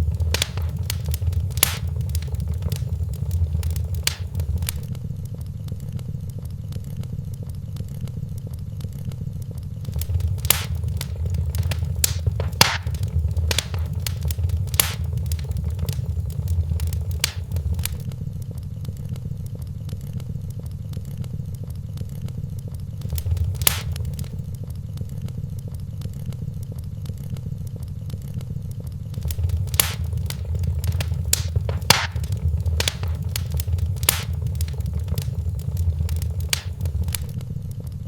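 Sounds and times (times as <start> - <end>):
fire crackling and popping: 0.0 - 5.0, 9.5 - 18.5, 23.0 - 25.4, 29.1 - 37.4
low rumble of flame: 0.0 - 37.9.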